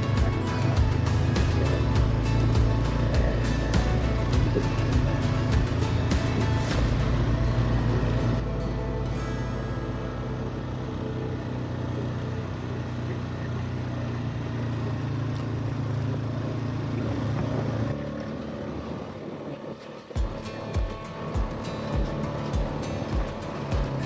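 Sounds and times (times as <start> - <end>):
short low thumps: 0.0 - 8.4
vehicle engine humming: 0.0 - 24.0.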